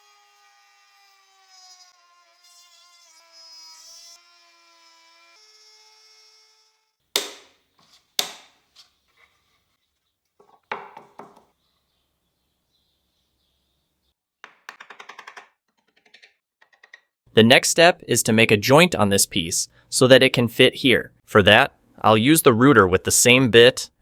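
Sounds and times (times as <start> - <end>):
wood knocking on workbench: 7.2 - 7.5, 8.2 - 8.5, 10.4 - 11.5, 14.4 - 15.5.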